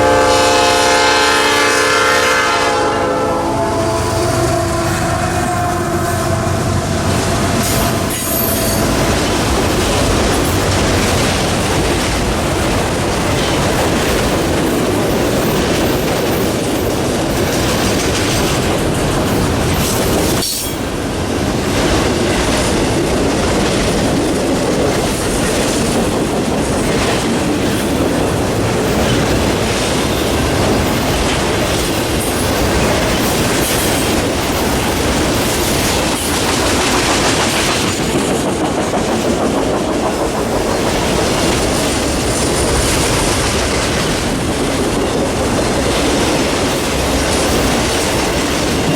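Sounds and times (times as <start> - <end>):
locomotive horn: 0.0 - 9.1
freight train rumbling on rails: 0.0 - 48.9.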